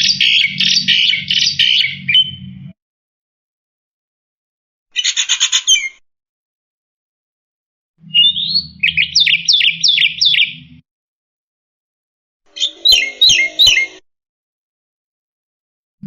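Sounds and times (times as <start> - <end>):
starling calling: 0.0 - 2.5, 4.9 - 6.0, 8.1 - 10.7, 12.5 - 14.0.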